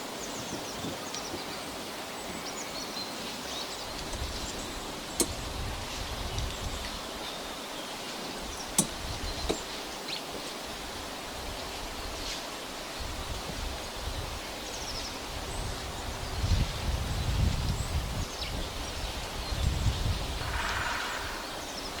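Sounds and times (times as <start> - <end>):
steady outdoor hiss: 0.0 - 22.0
faint bird chirps: 20.3 - 22.0.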